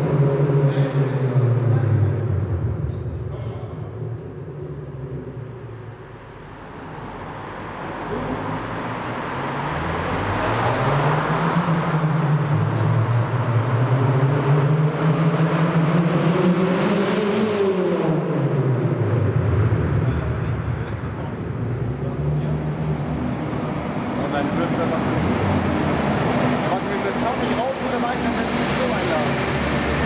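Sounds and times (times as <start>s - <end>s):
car engine and exhaust revving: 0.0s - 30.0s.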